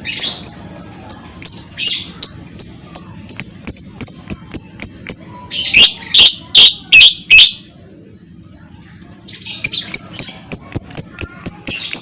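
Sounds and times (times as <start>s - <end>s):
bird harsh calls: 0.0s - 7.8s.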